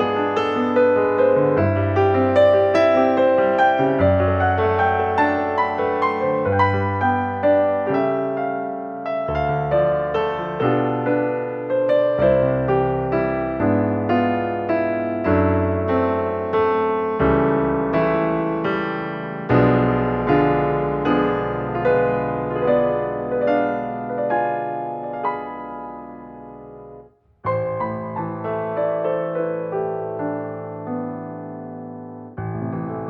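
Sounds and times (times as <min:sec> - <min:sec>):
slow gentle piano music: 0:00.0 - 0:33.0.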